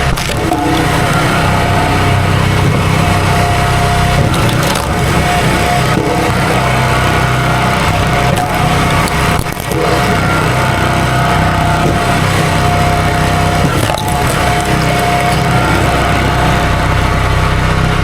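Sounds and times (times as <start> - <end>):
chainsaw running at high throttle: 0.0 - 18.0.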